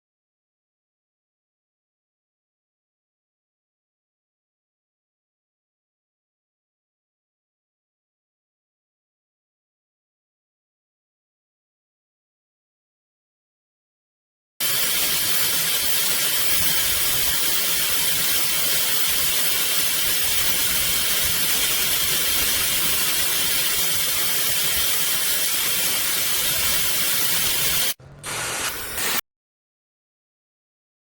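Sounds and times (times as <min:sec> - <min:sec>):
hair dryer blowing: 0:23.0 - 0:29.2.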